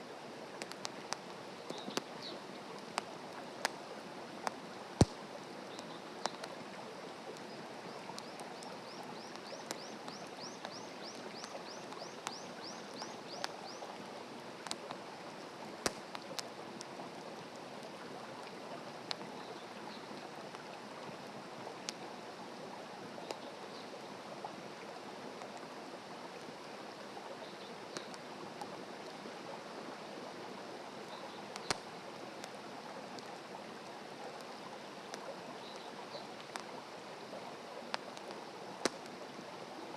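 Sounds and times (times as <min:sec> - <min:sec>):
wood fire crackling and popping: 0:00.5 - 0:03.8, 0:04.4 - 0:06.6, 0:14.5 - 0:15.0, 0:15.8 - 0:17.6, 0:31.5 - 0:32.6, 0:37.9 - 0:39.3.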